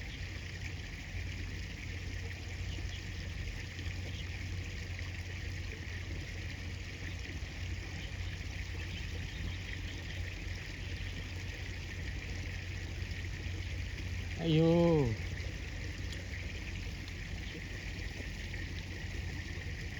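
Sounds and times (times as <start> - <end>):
river water rushing: 14.0 - 19.6.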